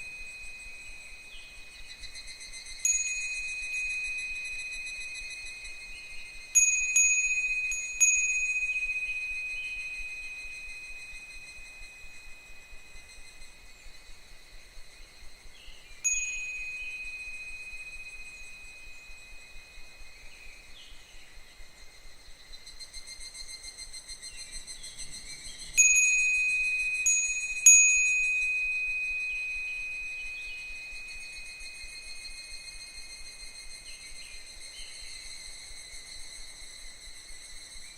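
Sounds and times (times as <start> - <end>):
wind bell ringing: 0.0 - 13.7, 16.0 - 20.9, 25.8 - 34.5
faint cicadas calling: 0.0 - 37.9.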